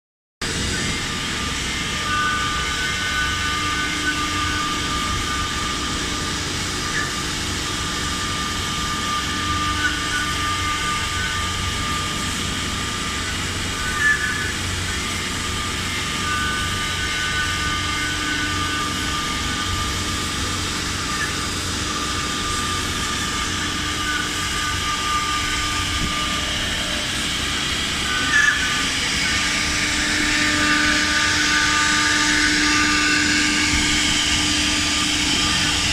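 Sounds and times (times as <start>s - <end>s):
machine hum: 0.4s - 35.9s
spindle whine: 0.4s - 35.9s.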